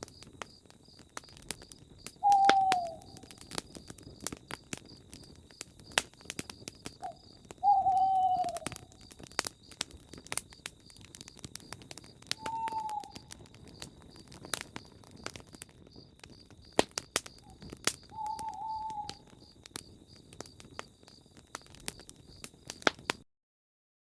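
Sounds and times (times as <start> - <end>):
campfire crackling: 0.0 - 23.2
owl hooting: 2.2 - 3.4, 7.0 - 9.0, 12.4 - 13.3, 17.4 - 19.4.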